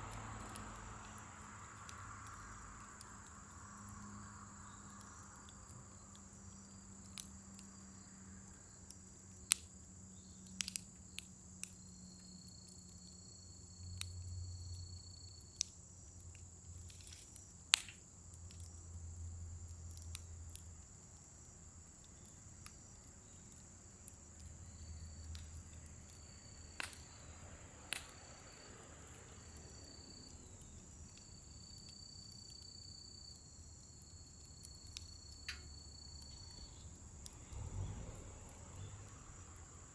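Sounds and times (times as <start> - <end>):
insect chorus: 0.0 - 39.9
sharp pops of fire: 0.0 - 39.9
wood fire crackling: 0.0 - 39.9.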